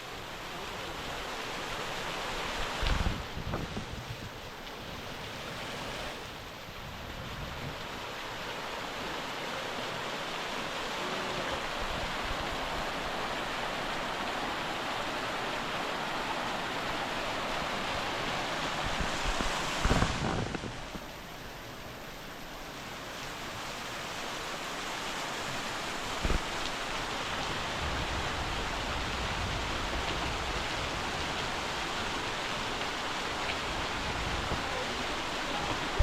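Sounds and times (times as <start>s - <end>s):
wind buffeting microphone: 2.8s - 4.4s, 18.7s - 21.1s
waterfall splashing: 7.8s - 36.0s.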